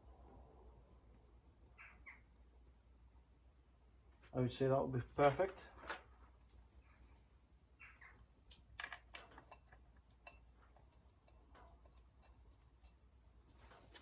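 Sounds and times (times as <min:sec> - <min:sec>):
metal tools clicking and tapping: 0:08.4 - 0:13.1.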